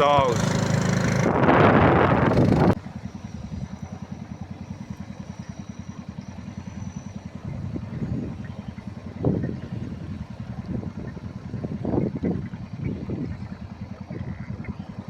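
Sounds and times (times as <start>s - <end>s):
outboard motor running: 0.0s - 15.0s
faint high whine: 1.9s - 9.9s.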